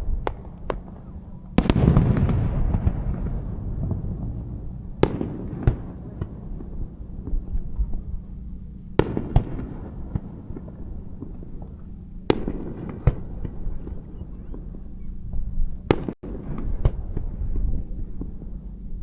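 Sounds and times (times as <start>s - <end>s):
fireworks crackling: 0.0s - 8.4s
low continuous rumble: 0.0s - 19.0s.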